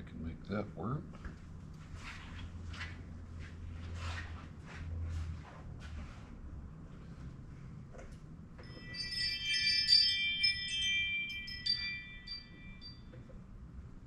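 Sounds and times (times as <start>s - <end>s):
chimes ringing: 8.6s - 13.5s.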